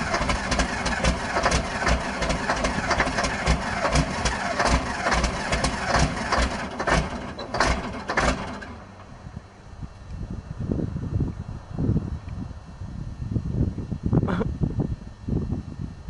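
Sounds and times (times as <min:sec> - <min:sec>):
diesel engine running roughly: 0:00.0 - 0:09.8.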